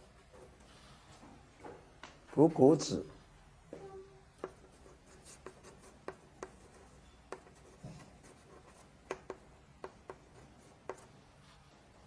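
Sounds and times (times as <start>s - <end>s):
pen scratching on surface: 4.4s - 11.6s.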